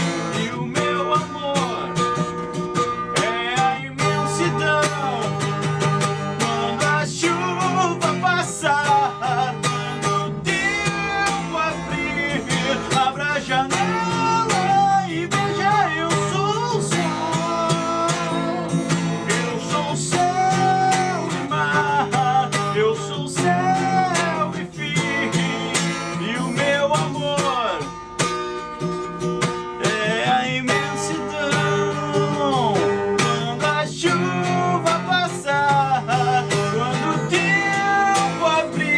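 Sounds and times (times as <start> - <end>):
guitar melody bending in pitch: 0.0 - 38.9.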